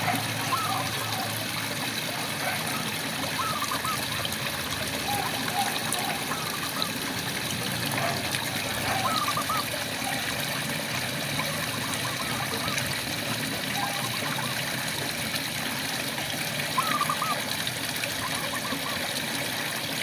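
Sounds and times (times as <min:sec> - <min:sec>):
frogs trilling: 0:00.0 - 0:07.2, 0:07.9 - 0:10.5, 0:11.4 - 0:14.8, 0:16.6 - 0:19.2
steady rainfall: 0:00.0 - 0:18.5.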